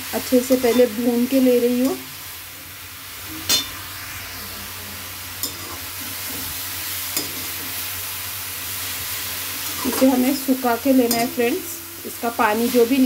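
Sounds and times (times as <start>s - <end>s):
vegetable sizzling in hot fat: 0.0s - 13.0s
steel spoon clinking on pan: 11.0s - 11.6s.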